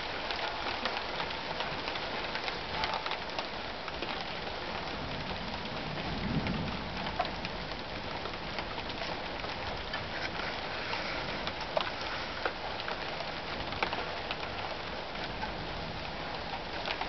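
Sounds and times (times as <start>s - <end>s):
raindrops ticking close by: 0.0s - 17.0s
steady rain hiss: 0.0s - 17.0s
low thunder rumble: 4.9s - 13.8s.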